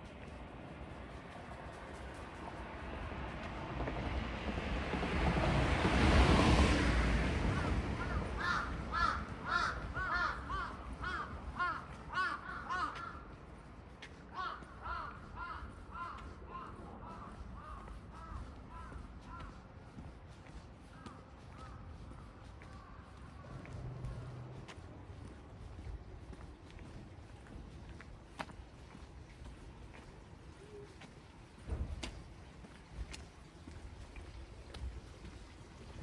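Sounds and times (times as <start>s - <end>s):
vehicle passing: 2.2s - 10.9s, 23.1s - 25.7s
crows cawing: 7.5s - 20.0s, 20.8s - 24.3s.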